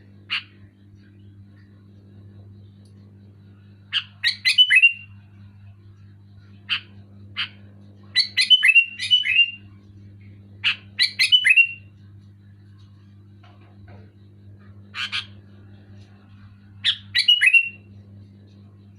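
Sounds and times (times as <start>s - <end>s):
bulbul whistled song: 3.9s - 5.2s, 8.1s - 9.7s, 10.6s - 11.9s, 16.8s - 17.9s.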